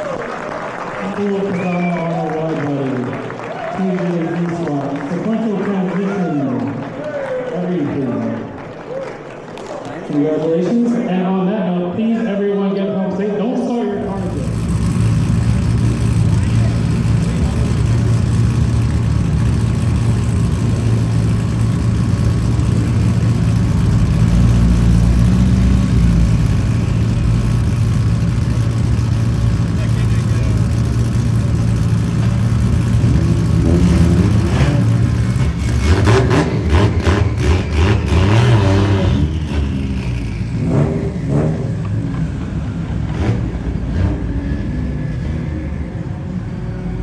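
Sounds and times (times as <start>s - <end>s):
car engine running: 13.2s - 47.0s.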